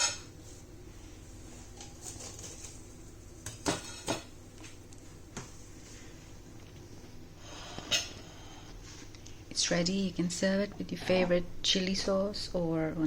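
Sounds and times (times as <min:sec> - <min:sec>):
utensils clinking against dishes: 0:00.0 - 0:00.3.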